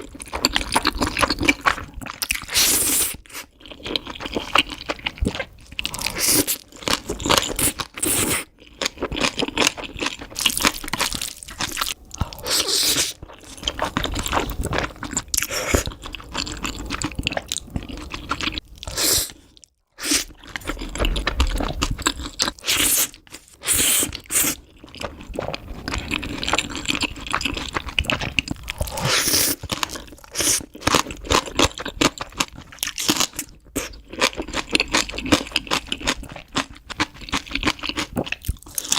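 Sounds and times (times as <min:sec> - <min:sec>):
crunching bites and chewing: 0:00.0 - 0:38.9.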